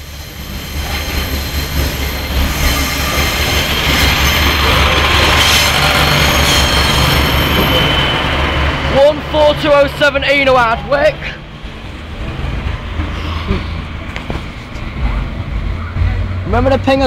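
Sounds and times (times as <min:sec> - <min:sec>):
train wheels rolling: 0:00.0 - 0:16.5
high-pitched wheel squeal: 0:00.2 - 0:08.7
diesel engine drone: 0:03.4 - 0:17.0.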